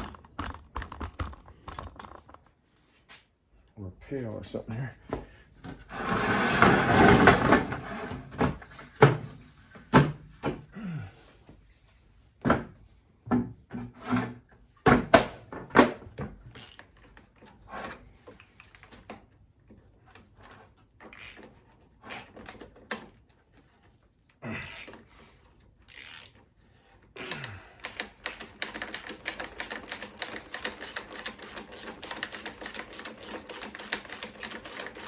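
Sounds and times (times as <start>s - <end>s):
objects knocking and clunking: 0.0s - 2.6s, 12.4s - 17.2s.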